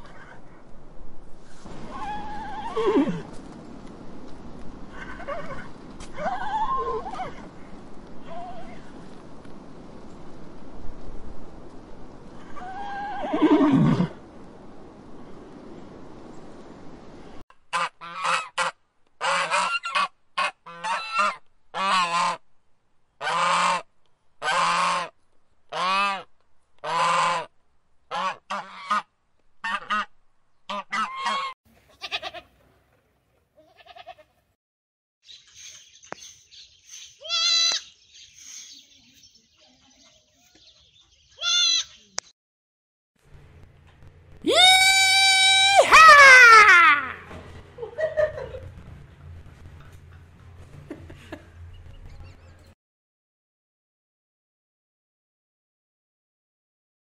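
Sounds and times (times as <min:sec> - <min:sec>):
goose honking: 0:17.7 - 0:22.4, 0:23.2 - 0:23.8, 0:24.4 - 0:25.1, 0:25.7 - 0:27.5, 0:28.1 - 0:30.1, 0:30.7 - 0:32.2.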